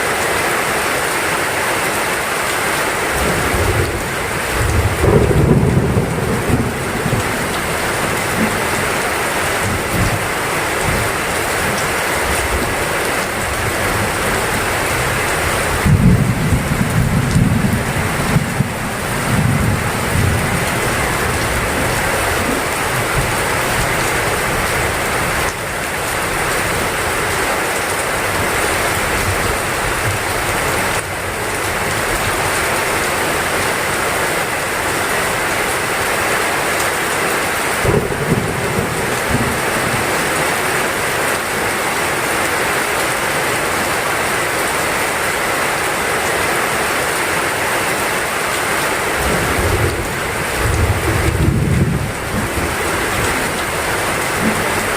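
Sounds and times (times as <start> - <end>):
heavy rain falling: 0.0 - 54.9
thunder rumbling: 3.3 - 11.8, 13.4 - 25.5, 49.2 - 54.9.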